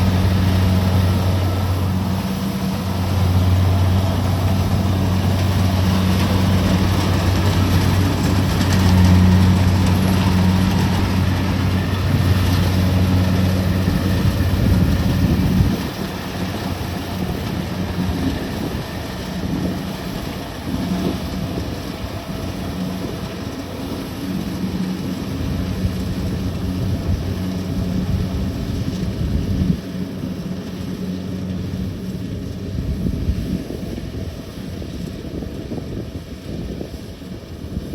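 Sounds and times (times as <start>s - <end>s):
combine harvester diesel engine running: 0.0s - 37.9s.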